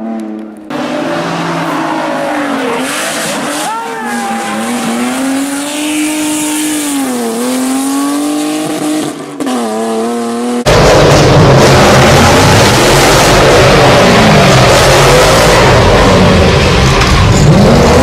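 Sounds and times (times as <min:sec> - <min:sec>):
car engine revving high: 0:00.0 - 0:18.0
rough noisy engine: 0:10.6 - 0:18.0.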